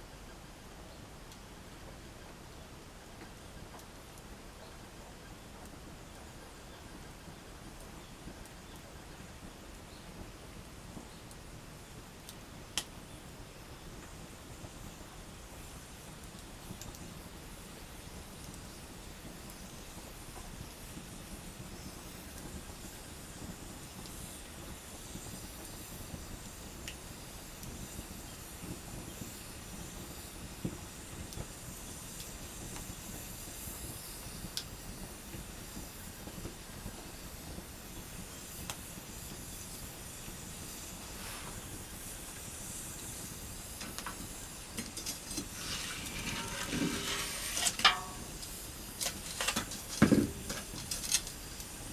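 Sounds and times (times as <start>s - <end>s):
campfire crackling: 34.5s - 51.9s.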